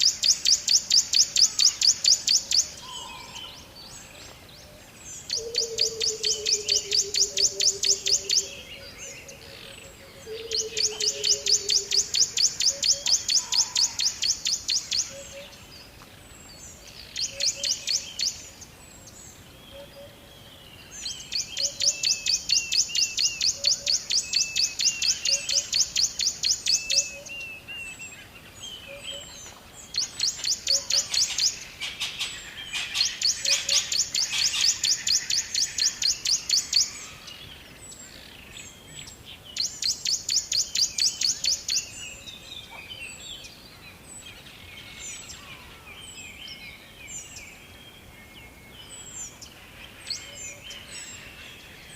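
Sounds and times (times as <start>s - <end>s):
lower falling bird calls: 0.0s - 51.9s
birds rattling trill: 28.8s - 41.9s.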